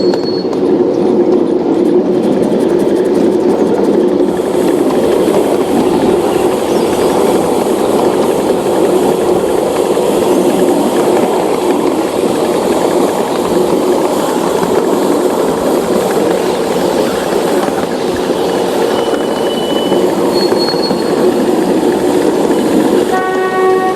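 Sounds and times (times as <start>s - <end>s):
thin high whistle tone: 0.0s - 0.6s, 18.5s - 21.3s
train rumbling on track: 0.0s - 23.9s.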